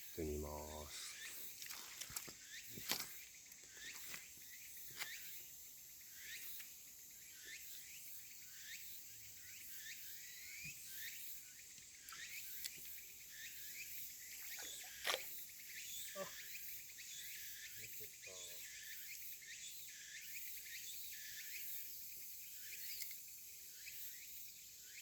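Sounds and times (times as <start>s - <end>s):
insect drone: 0.0s - 25.0s
rising chirping calls: 13.2s - 18.8s.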